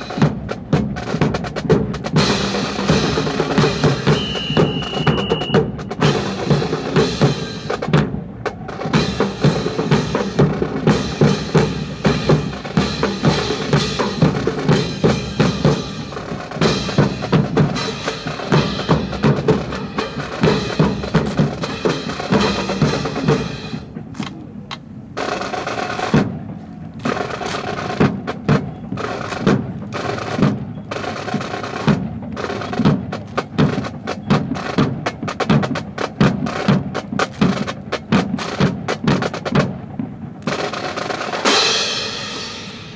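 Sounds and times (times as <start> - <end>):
snare and bass drums: 0.0 - 42.9
whistle blast: 4.0 - 6.2.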